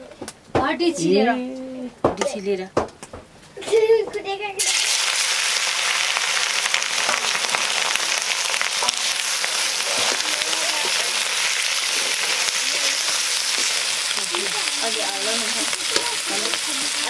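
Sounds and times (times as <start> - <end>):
chicken frying in oil: 4.6 - 17.0.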